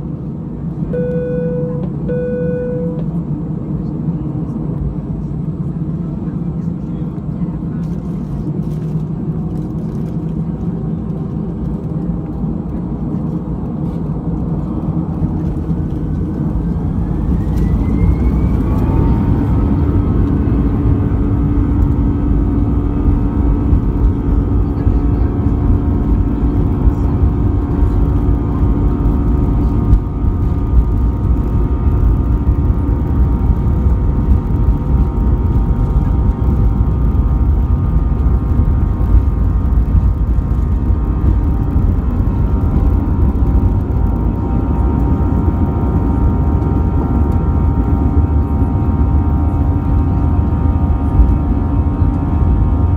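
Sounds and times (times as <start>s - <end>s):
deep engine rumble: 0.0s - 52.9s
held whining tones: 0.9s - 3.2s, 14.9s - 52.9s.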